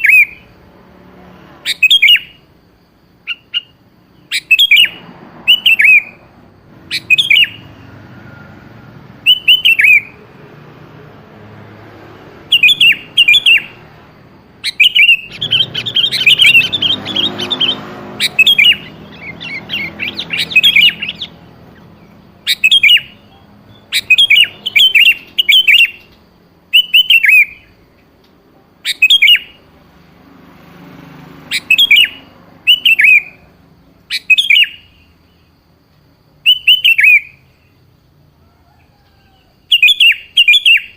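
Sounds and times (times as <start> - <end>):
bulbul singing: 0.0 - 40.9
bird chattering rapidly: 14.6 - 26.0.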